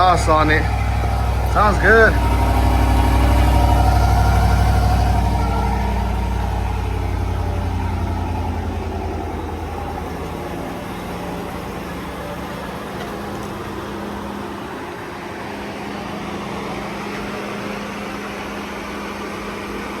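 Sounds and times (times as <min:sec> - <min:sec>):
pickup engine idling: 0:00.0 - 0:20.0.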